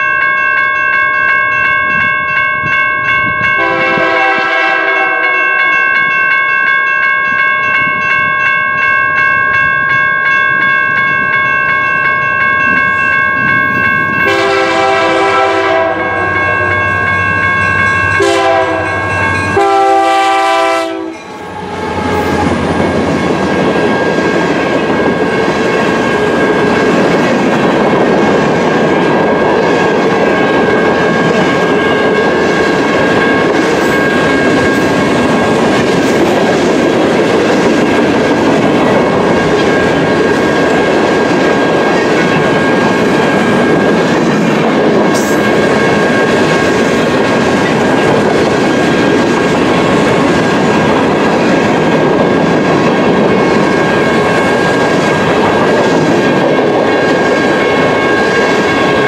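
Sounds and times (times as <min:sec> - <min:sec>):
train cars rolling past: 0:01.6 - 0:59.0
train horn blasts: 0:03.6 - 0:05.6, 0:14.2 - 0:17.1, 0:18.2 - 0:22.7.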